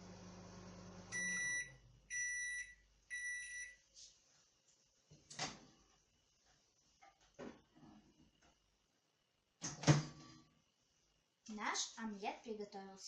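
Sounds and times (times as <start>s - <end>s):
microwave beeps: 0.0s - 3.8s
microwave oven humming: 0.0s - 3.8s.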